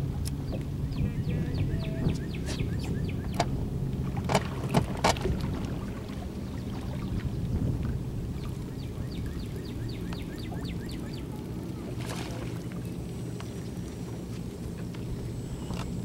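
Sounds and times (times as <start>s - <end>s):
wind and water rumble: 0.0s - 16.0s
bird chirping: 0.4s - 3.5s, 8.7s - 11.3s.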